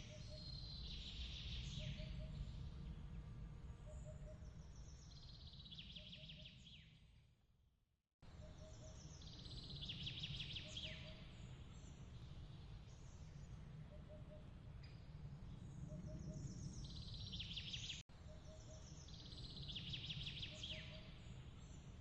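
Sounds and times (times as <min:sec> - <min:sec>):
low steady rumble: 0:00.0 - 0:05.8.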